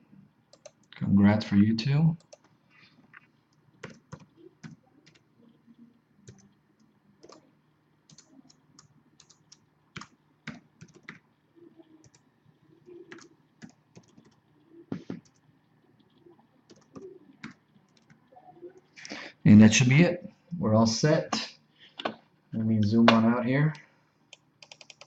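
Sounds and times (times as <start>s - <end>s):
typing on computer keyboard: 0.5s - 0.9s, 2.2s - 2.5s, 3.8s - 5.2s, 6.2s - 7.5s, 8.1s - 11.2s, 12.0s - 12.2s, 12.8s - 14.5s, 16.6s - 18.2s, 24.3s - 25.0s
mouse clicking: 0.5s - 1.0s, 6.2s - 7.5s, 8.1s - 11.2s, 12.0s - 18.2s, 24.3s - 25.0s.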